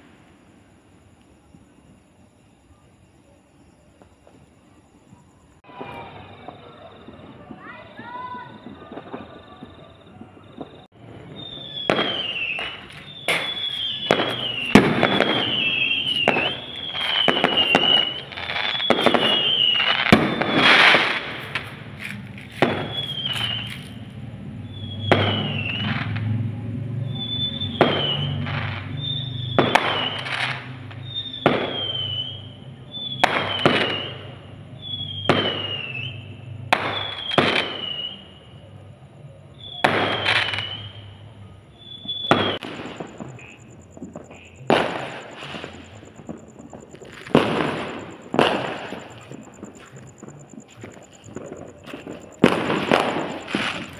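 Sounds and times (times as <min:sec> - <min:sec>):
fireworks banging: 0:05.7 - 0:32.5, 0:33.1 - 0:38.3, 0:39.8 - 0:41.0, 0:42.0 - 0:53.9
short falling whistle: 0:11.4 - 0:20.6, 0:41.8 - 0:42.6.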